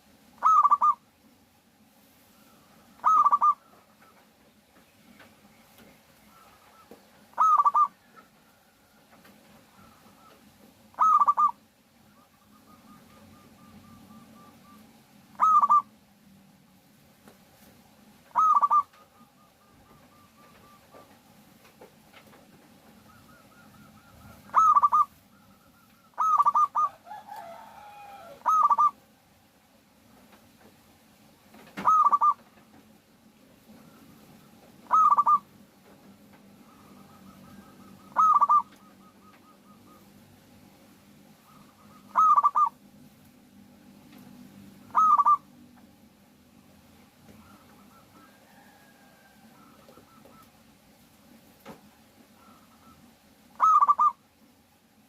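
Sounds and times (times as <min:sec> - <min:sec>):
dove cooing phrases: 0:00.4 - 0:01.2, 0:02.4 - 0:04.3, 0:06.2 - 0:16.1, 0:18.2 - 0:21.4, 0:22.7 - 0:29.3, 0:31.6 - 0:32.8, 0:33.6 - 0:43.0, 0:44.3 - 0:51.0, 0:51.9 - 0:54.4
faint soft cooing: 0:23.1 - 0:29.0.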